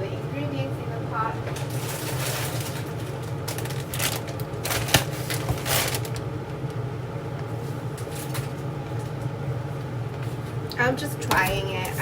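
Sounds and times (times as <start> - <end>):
broth boiling in pot: 0.0 - 12.0
steady low hum: 0.0 - 12.0
kitchen clicks and rustles: 1.4 - 6.3, 8.0 - 9.3.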